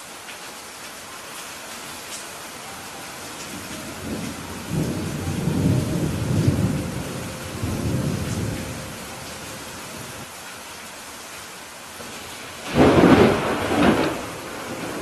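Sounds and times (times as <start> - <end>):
steady rain: 0.0 - 15.0
thunder rumble: 3.3 - 10.3, 12.1 - 15.0.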